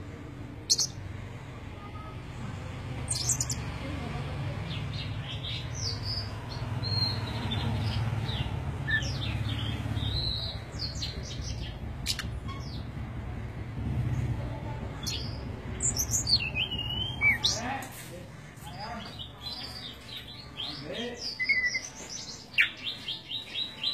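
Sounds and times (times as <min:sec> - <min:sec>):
small birds chirping: 0:00.4 - 0:23.9.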